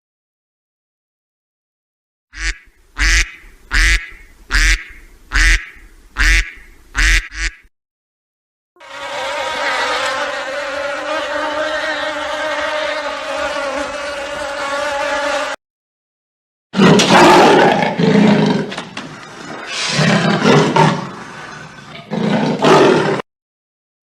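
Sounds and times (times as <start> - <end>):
quack-like calls: 2.4 - 7.7, 8.9 - 10.6
steady even buzzing: 2.4 - 7.7.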